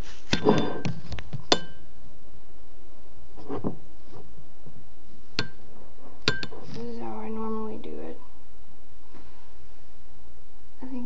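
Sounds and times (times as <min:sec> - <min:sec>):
ringing clink: 0:01.5 - 0:01.8, 0:06.3 - 0:06.6.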